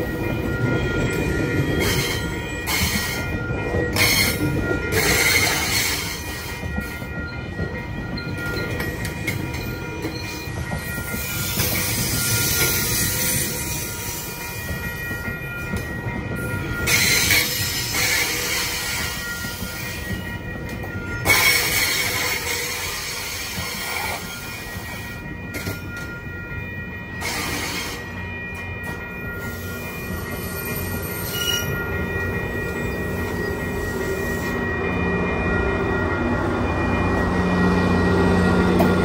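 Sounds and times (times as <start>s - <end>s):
train wheel and brake squeal: 0.7s - 15.8s, 16.4s - 26.2s, 27.1s - 35.0s.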